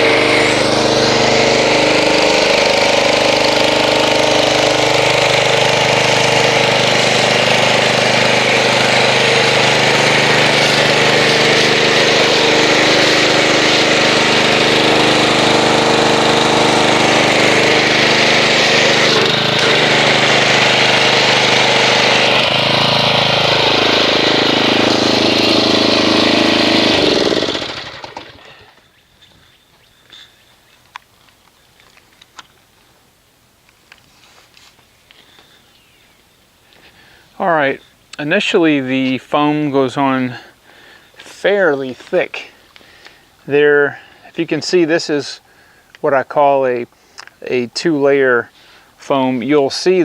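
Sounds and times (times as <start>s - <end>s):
pressure washer motor and pump: 0.0s - 28.8s.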